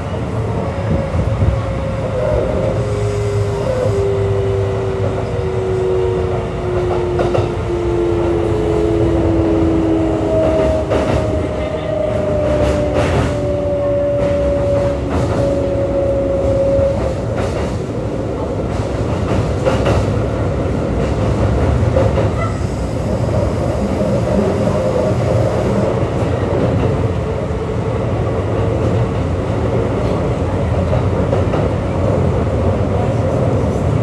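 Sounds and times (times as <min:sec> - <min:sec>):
train wheels rumbling on rails: 0:00.0 - 0:34.0
rail joint clacks: 0:03.5 - 0:27.3.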